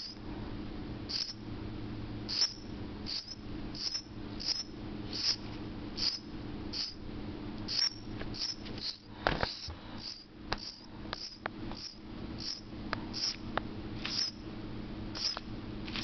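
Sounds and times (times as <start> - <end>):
small bird chirping: 1.1 - 1.4, 2.3 - 5.4, 6.0 - 7.0, 7.6 - 13.4, 14.0 - 14.4, 15.2 - 15.4.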